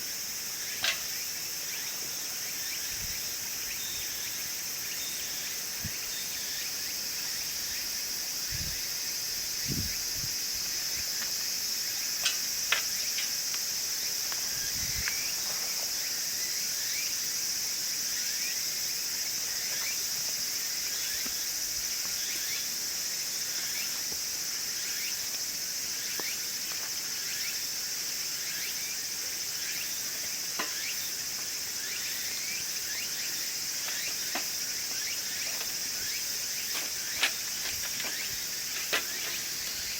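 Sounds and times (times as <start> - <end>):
insects chorus: 0.0 - 39.9
wood crackling and popping in stove: 0.7 - 1.2, 12.2 - 14.5.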